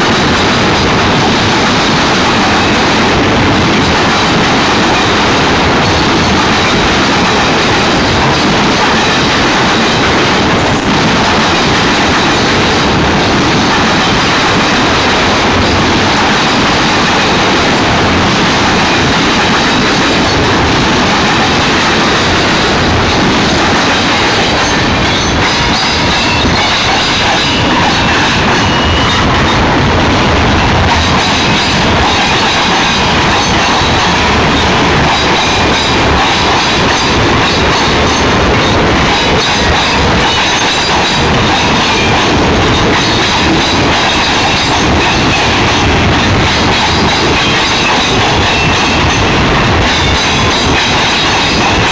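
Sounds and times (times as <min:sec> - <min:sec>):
wheels clacking over rails: 0:00.0 - 0:51.9.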